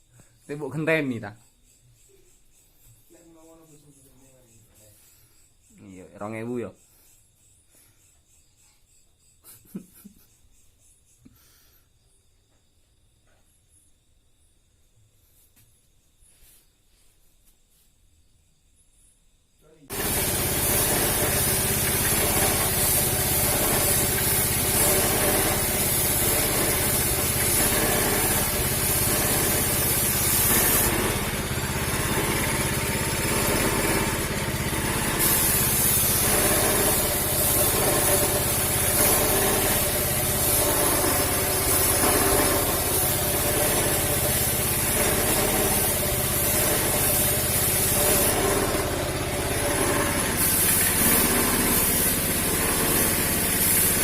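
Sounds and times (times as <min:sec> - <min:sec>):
hiss of air spray: 0:19.9 - 0:54.0
small motor running: 0:19.9 - 0:54.0.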